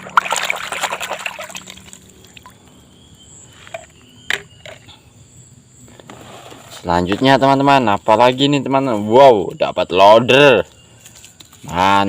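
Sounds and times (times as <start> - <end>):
water splashing through wet sand: 0.0 - 2.6.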